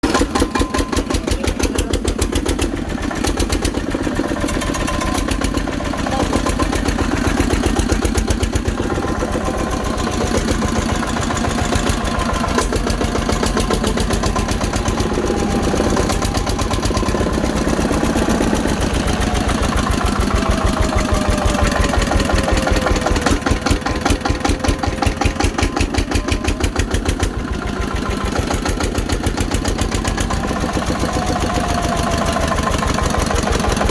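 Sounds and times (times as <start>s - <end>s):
tractor engine idling: 0.0s - 33.9s.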